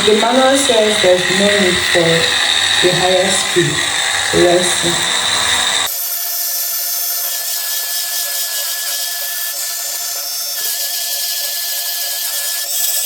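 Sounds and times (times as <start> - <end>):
brush scrubbing a sink: 0.0 - 5.1
thin motor whine: 0.0 - 6.0.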